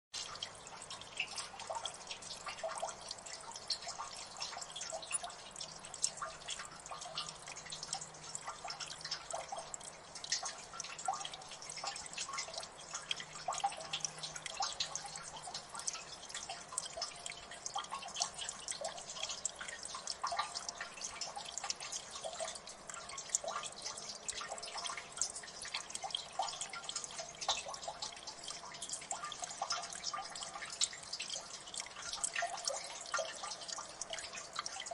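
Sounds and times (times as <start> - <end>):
water dripping: 0.1 - 34.9.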